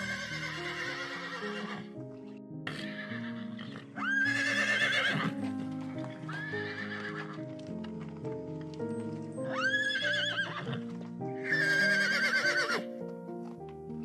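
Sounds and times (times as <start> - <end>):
horse whinnying: 0.0 - 2.0, 2.6 - 5.6, 6.3 - 7.5, 9.4 - 12.9
background music: 0.0 - 14.0.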